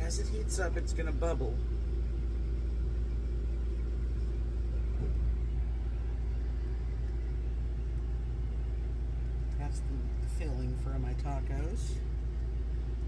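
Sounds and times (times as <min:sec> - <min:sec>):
steady low rumble and hum: 0:00.0 - 0:13.0.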